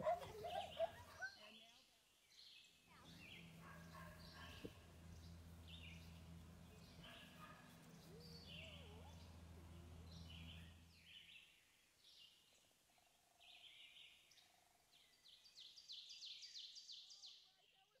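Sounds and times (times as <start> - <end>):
low steady hum: 2.9 - 11.4.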